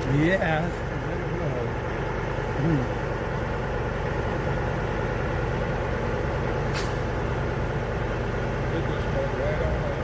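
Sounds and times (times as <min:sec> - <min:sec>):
truck engine idling: 0:00.0 - 0:10.0
air brake hiss: 0:06.7 - 0:07.1.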